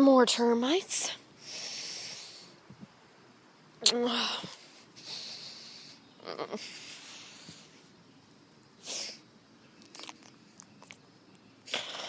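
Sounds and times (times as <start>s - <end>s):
person snorting breath bursts: 11.7s - 12.0s.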